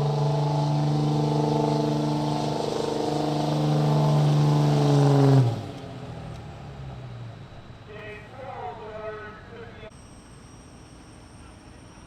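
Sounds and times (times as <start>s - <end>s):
truck engine at full throttle: 0.0s - 9.4s.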